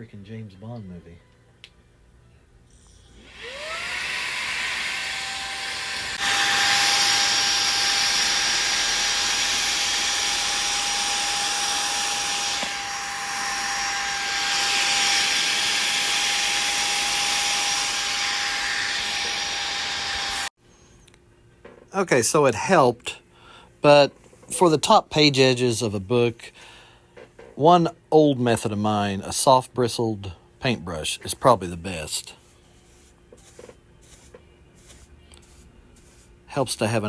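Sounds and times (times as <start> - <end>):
handheld vacuum motor whine: 3.1 - 20.5.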